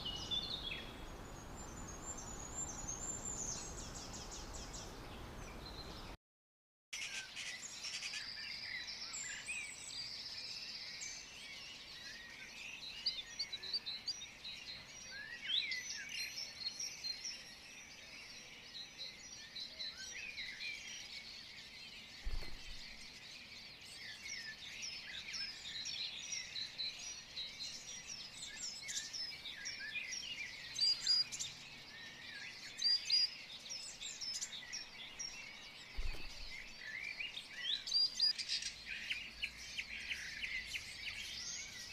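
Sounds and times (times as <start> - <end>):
small birds chirping: 0.0 - 6.2, 7.0 - 41.9
dull low thump: 22.2 - 23.0, 36.0 - 36.8.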